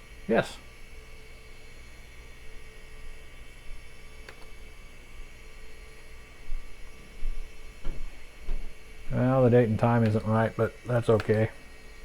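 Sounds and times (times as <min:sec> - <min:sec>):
computer electrical hum and whine: 0:00.0 - 0:12.0
faint click: 0:04.2 - 0:04.5.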